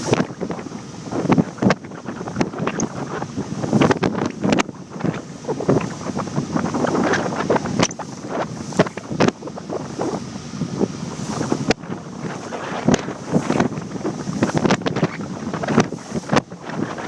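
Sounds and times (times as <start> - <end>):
wind buffeting microphone: 0.0 - 17.0
microphone pops from wind: 12.8 - 17.0.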